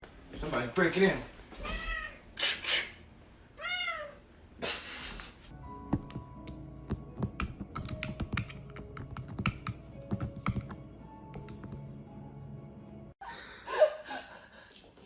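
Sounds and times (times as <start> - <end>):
soft background music: 5.5 - 13.2.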